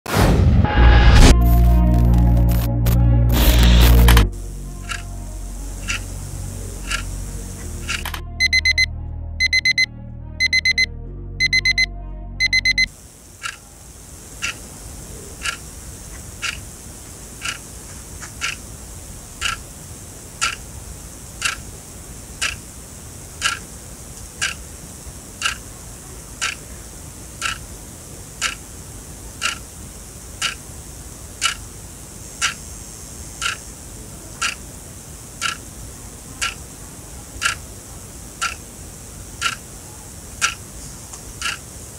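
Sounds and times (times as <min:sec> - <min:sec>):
clock ticking: 0:04.8 - 0:05.1, 0:05.8 - 0:06.2, 0:06.8 - 0:13.6, 0:16.4 - 0:16.6, 0:17.4 - 0:17.6, 0:18.4 - 0:18.6, 0:19.4 - 0:19.6, 0:20.4 - 0:20.6, 0:21.4 - 0:21.6, 0:22.4 - 0:22.6, 0:23.4 - 0:23.6, 0:24.4 - 0:24.6, 0:25.4 - 0:25.6, 0:26.4 - 0:26.6, 0:27.4 - 0:27.6, 0:28.4 - 0:28.6, 0:29.4 - 0:29.6, 0:30.4 - 0:30.6, 0:31.4 - 0:31.6, 0:33.4 - 0:33.6, 0:35.4 - 0:35.6, 0:36.4 - 0:36.6, 0:37.4 - 0:37.6, 0:38.4 - 0:38.6, 0:39.4 - 0:39.6, 0:40.4 - 0:40.6, 0:41.4 - 0:41.6
alarm clock beeping: 0:06.8 - 0:07.1, 0:07.8 - 0:12.9.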